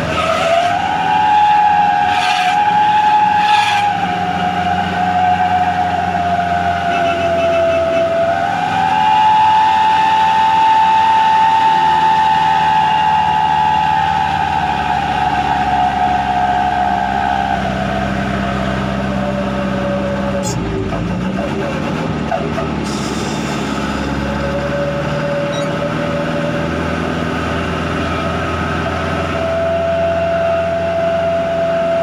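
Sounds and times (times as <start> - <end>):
howling exhaust horn tone: 0.0 - 20.6, 27.9 - 32.0
diesel truck engine running: 0.0 - 32.0.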